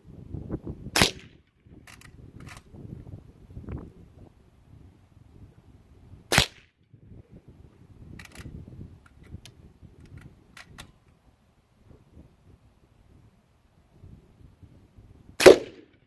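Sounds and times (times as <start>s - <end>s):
rifle shot: 1.0s - 1.4s, 6.3s - 6.7s, 15.4s - 16.0s.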